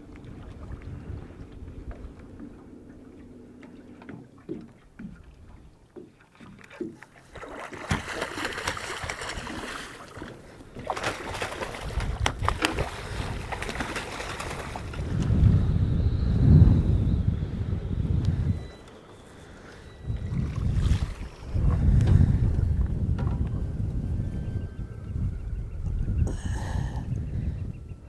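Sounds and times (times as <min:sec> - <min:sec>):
wind on microphone: 0:00.0 - 0:03.3, 0:07.4 - 0:28.0
water splashing against boat: 0:00.0 - 0:15.7, 0:18.5 - 0:24.1.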